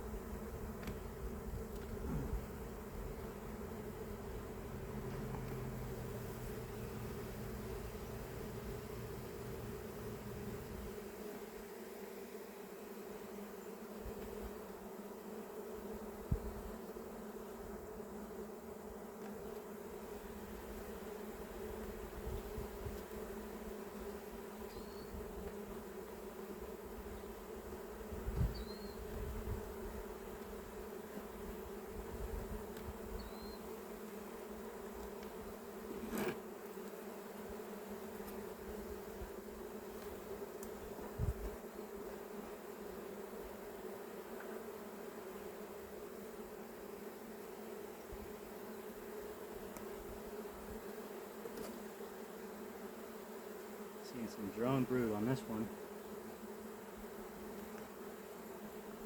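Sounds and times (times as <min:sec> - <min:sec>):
honeybees buzzing: 0:00.0 - 0:59.0.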